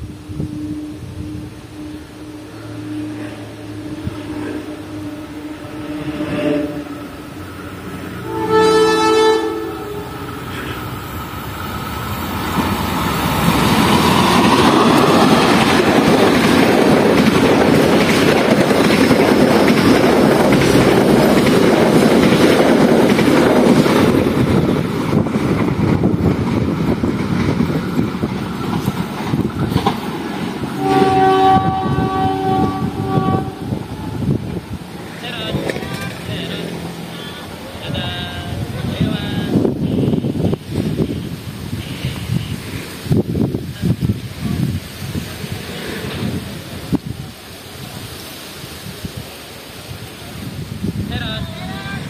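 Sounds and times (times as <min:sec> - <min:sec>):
train rumble and wheel clatter: 0:00.0 - 0:52.0
train horn: 0:00.2 - 0:07.4, 0:08.2 - 0:10.8, 0:30.7 - 0:33.8, 0:39.6 - 0:40.5.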